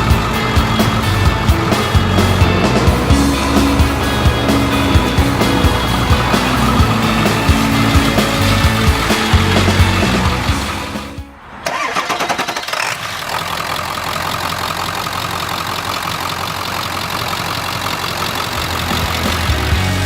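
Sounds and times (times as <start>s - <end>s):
diesel engine cranking and idling: 0.0s - 20.0s.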